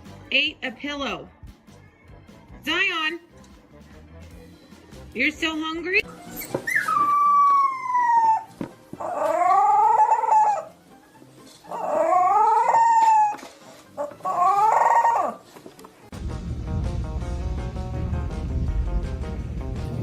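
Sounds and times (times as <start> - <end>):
dog howling: 6.7 - 10.8, 11.7 - 15.5.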